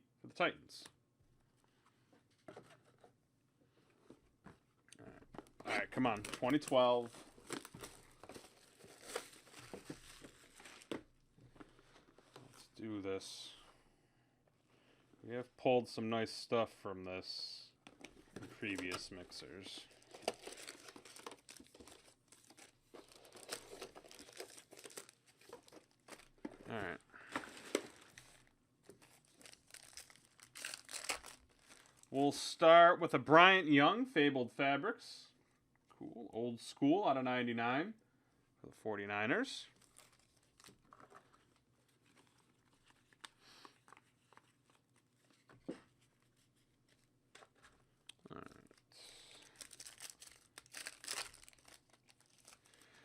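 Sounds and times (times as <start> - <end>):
plastic wrapping crinkling and tearing: 6.0 - 11.0, 19.7 - 32.1, 39.8 - 45.4, 48.4 - 53.0
trading cards rustling: 6.0 - 11.0, 18.0 - 32.1, 39.7 - 47.8, 49.4 - 52.9.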